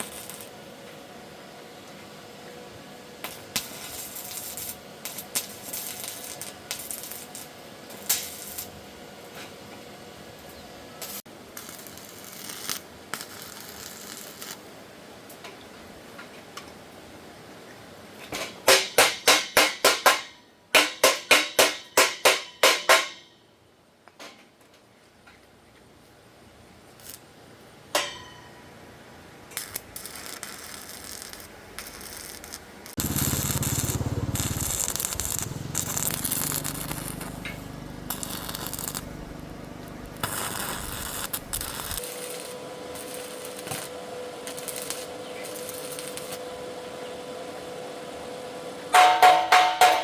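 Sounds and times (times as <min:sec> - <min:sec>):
metal clank: 0:28.0 - 0:28.6, 0:49.0 - 0:50.0
harsh metal scraping: 0:31.9 - 0:43.9
low machine hum: 0:33.0 - 0:44.5
steady machine whine: 0:33.0 - 0:48.4.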